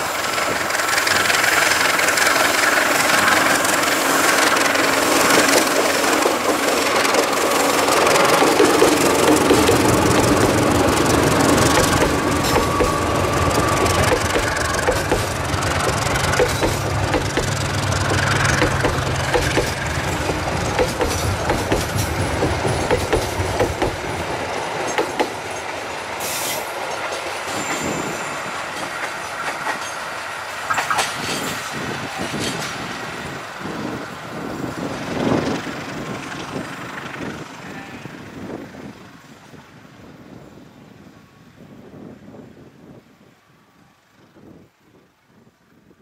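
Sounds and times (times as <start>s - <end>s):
wheels clacking over rail joints: 0.0s - 27.8s, 28.7s - 32.8s
locomotive engine hum: 0.0s - 37.5s
high wheel squeals: 7.2s - 21.8s.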